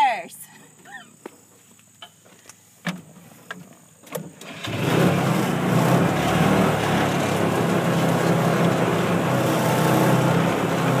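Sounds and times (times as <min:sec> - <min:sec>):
engine running steadily: 0:04.3 - 0:11.0.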